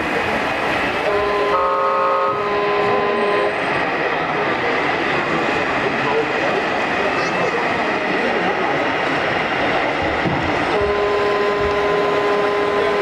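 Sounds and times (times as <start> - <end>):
multi-tone horn chord: 1.0 - 3.5, 10.8 - 13.0
busy hall background noise: 2.5 - 13.0.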